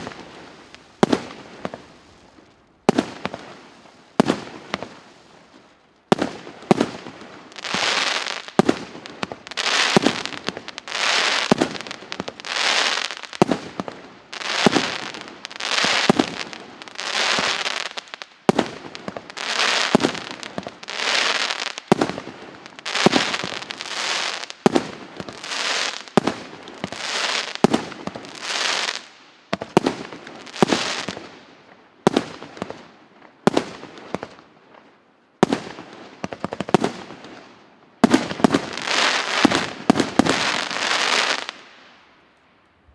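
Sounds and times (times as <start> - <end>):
firework cake firing: 6.1 - 31.2.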